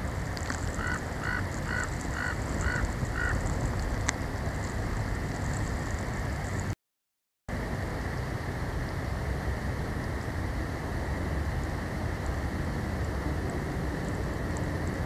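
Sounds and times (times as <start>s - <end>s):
steady storm noise: 0.0s - 6.8s, 7.5s - 15.0s
bird calling: 0.6s - 3.5s.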